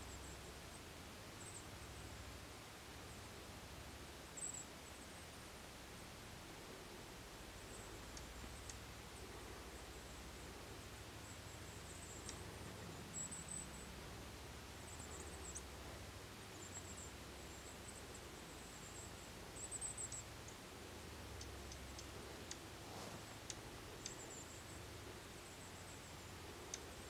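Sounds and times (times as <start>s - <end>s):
low steady rumble: 0.0s - 27.0s
songbirds chirping and trilling: 6.6s - 27.0s.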